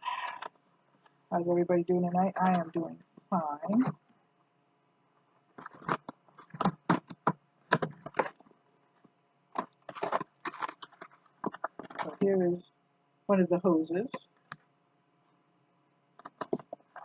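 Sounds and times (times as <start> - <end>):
packaging rustling and crinkling: 5.6 - 8.5, 9.6 - 12.2.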